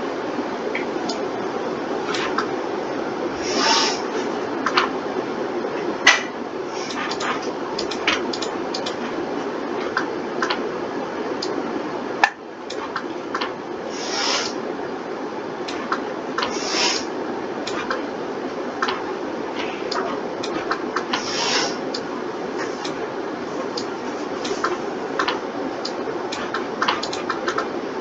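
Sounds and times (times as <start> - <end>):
steady hum: 0.0 - 28.0
short rubbing sounds: 3.4 - 4.3, 13.9 - 14.6, 16.5 - 17.1, 19.6 - 21.8.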